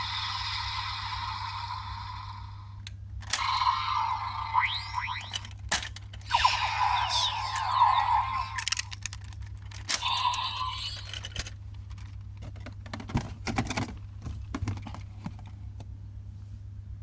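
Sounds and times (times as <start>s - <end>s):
low electrical hum: 0.0s - 17.0s
plastic toy parts clicking: 3.2s - 13.9s.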